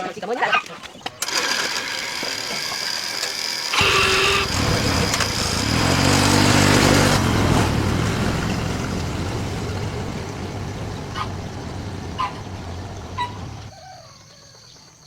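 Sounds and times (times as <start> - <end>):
vehicle engine starting and running: 3.6 - 13.7.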